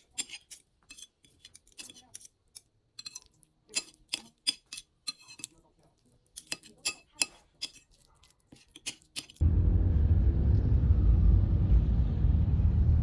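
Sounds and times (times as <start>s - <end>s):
loud low rumble: 9.4s - 13.0s.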